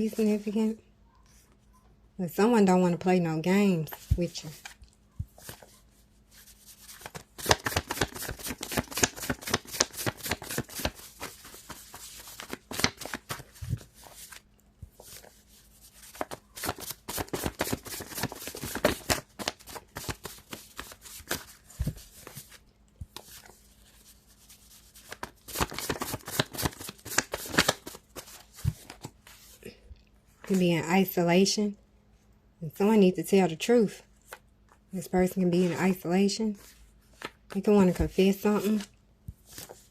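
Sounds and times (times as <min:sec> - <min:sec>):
cards being shuffled: 0:06.4 - 0:29.6.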